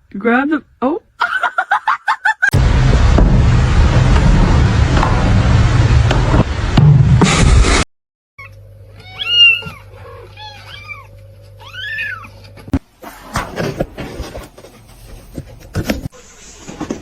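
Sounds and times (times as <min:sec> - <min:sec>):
steady low hum: 0:02.6 - 0:07.8
cat meowing: 0:08.4 - 0:12.4.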